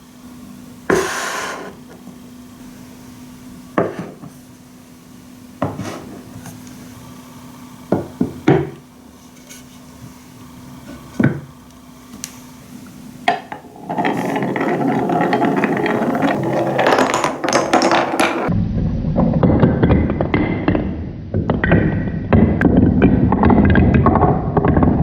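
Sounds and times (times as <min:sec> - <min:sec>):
marbles rattling on wooden track: 0:13.3 - 0:18.5.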